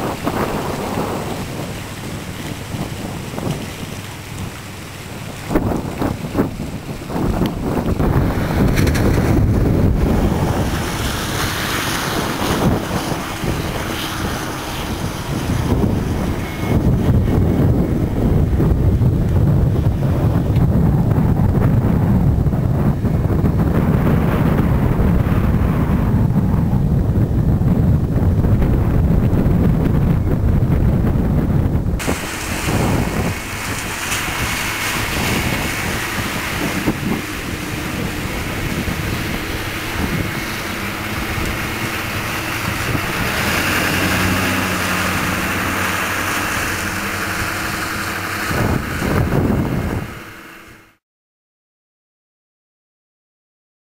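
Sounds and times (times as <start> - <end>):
wind rumbling on microphone: 0.0 - 51.0
rushing hiss: 32.0 - 48.5.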